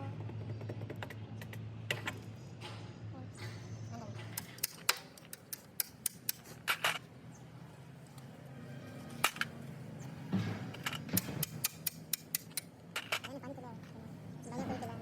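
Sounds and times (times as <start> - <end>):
metallic clicks and clinks: 4.2 - 7.0, 10.7 - 13.4.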